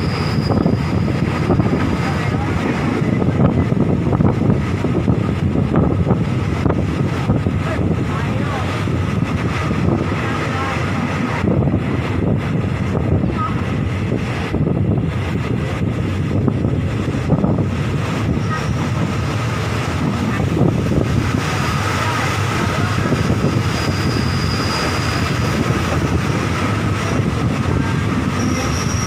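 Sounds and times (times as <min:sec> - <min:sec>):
high squeal of train: 0:00.0 - 0:29.0
train wheels rumbling on rails: 0:00.0 - 0:29.0
wind buffeting microphone: 0:00.0 - 0:29.0.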